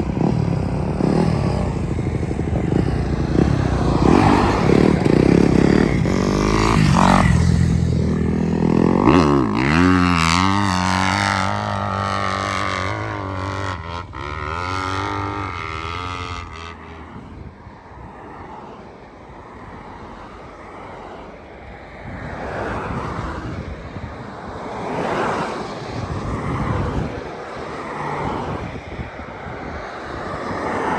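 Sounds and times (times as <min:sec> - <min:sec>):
dirt bike engine: 0:00.0 - 0:17.4.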